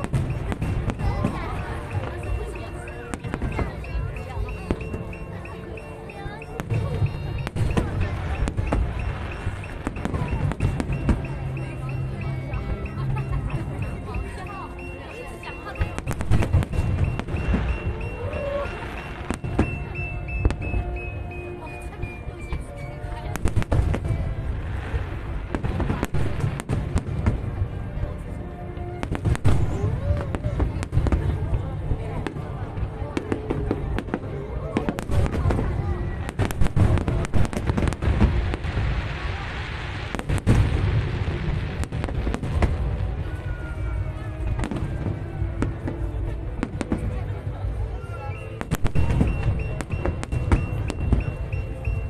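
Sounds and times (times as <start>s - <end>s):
fireworks bangs: 0.0s - 5.6s, 6.4s - 14.6s, 15.4s - 21.3s, 23.2s - 28.1s, 29.0s - 47.4s, 48.6s - 52.0s
fireworks crackling fizz: 0.0s - 21.0s, 33.3s - 47.4s
background music: 0.0s - 52.0s.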